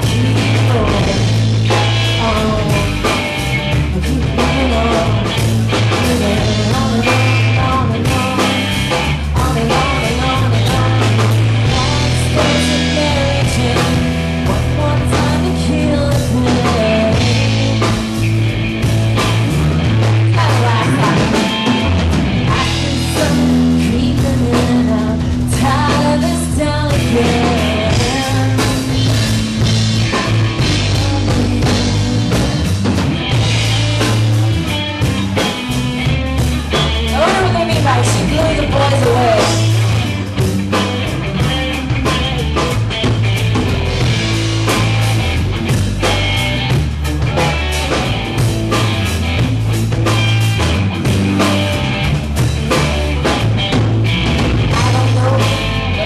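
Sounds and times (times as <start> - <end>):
person singing: 0.0 - 18.2, 20.0 - 32.9, 36.5 - 40.2, 54.7 - 56.0
bass guitar: 0.0 - 56.0
drum kit: 0.0 - 56.0
electric guitars: 0.0 - 56.0.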